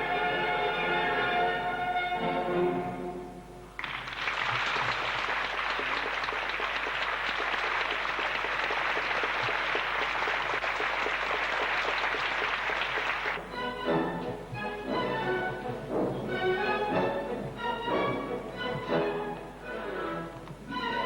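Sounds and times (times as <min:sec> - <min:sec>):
orchestral music: 0:00.0 - 0:03.6, 0:13.4 - 0:21.0
audience applauding: 0:03.8 - 0:13.4.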